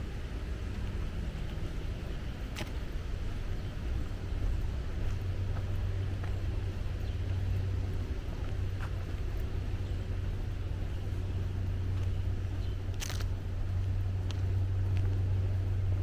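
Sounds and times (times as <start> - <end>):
distant road traffic rumble: 0.0 - 16.0.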